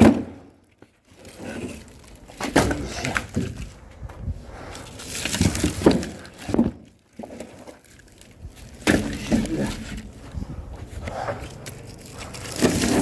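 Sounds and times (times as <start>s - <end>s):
logs knocking and clattering: 5.2s - 7.8s.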